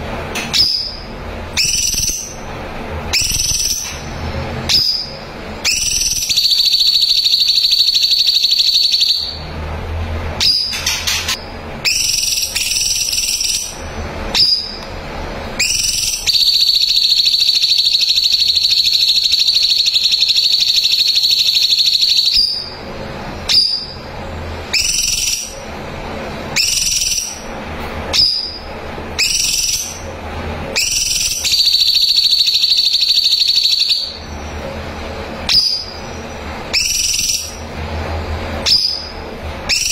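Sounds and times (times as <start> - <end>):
songbird trilling: 1.6 - 2.4, 24.7 - 25.5, 29.2 - 30.0.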